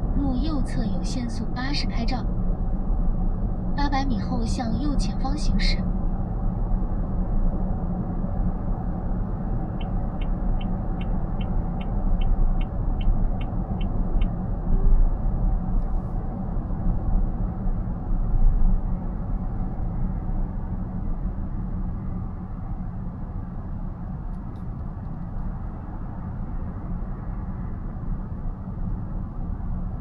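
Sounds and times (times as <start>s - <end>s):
road and tyre rumble: 0.0s - 30.0s
turn indicator ticking: 9.8s - 14.4s.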